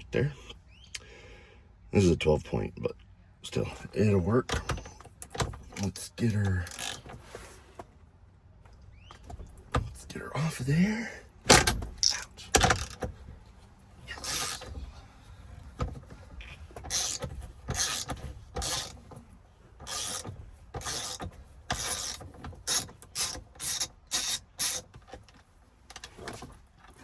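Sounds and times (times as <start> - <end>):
socket ratchet clicking: 16.8 - 19.0, 19.8 - 24.9.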